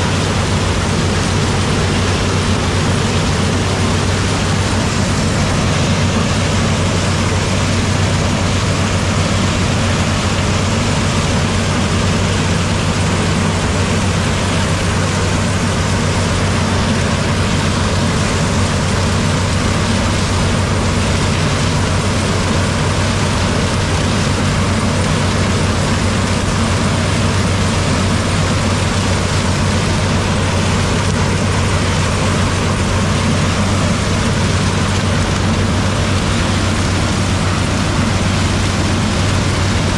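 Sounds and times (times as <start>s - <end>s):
combine harvester engine running: 0.0s - 39.9s.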